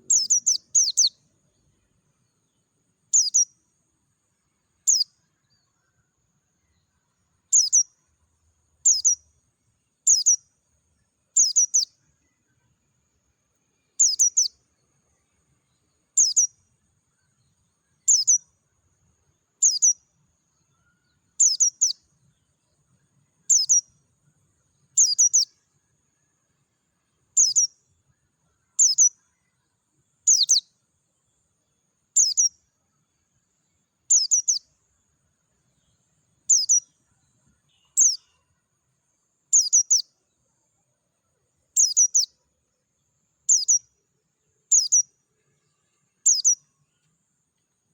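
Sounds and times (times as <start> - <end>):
bird high chirps: 0.0 - 1.3, 3.1 - 3.6, 4.8 - 5.8, 6.8 - 8.0, 8.8 - 9.4, 10.0 - 10.5, 11.3 - 12.0, 13.8 - 14.7, 15.7 - 16.6, 17.2 - 18.5, 19.3 - 22.1, 23.4 - 24.0, 24.9 - 25.7, 27.1 - 27.8, 28.6 - 29.6, 30.2 - 30.7, 32.1 - 32.6, 34.0 - 34.8, 35.7 - 38.5, 39.5 - 40.3, 41.7 - 42.4, 43.4 - 44.0, 44.6 - 45.2, 46.1 - 47.0.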